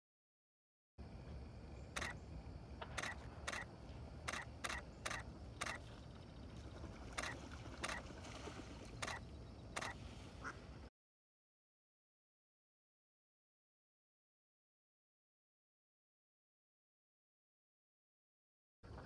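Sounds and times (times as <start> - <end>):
camera shutter clicks: 2.0 - 2.2, 2.8 - 3.7, 4.3 - 5.8, 9.8 - 10.0.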